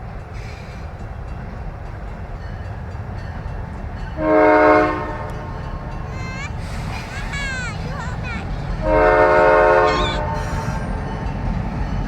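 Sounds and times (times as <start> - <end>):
train horn blast: 4.2 - 6.0, 8.8 - 11.2.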